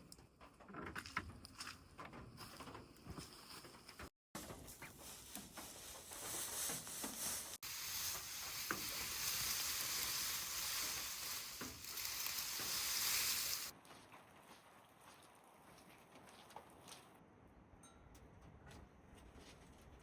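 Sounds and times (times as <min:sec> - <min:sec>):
sizzling hiss: 0:07.4 - 0:13.7.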